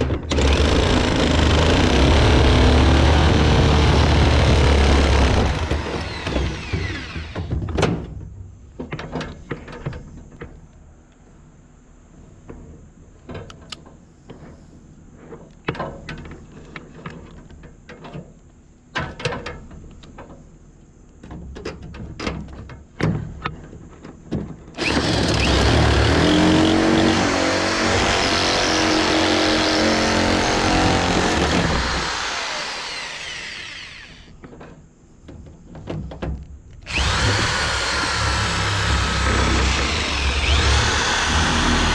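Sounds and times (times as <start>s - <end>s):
power tool cutting metal: 0.3s - 7.5s, 24.8s - 34.3s, 36.9s - 41.9s.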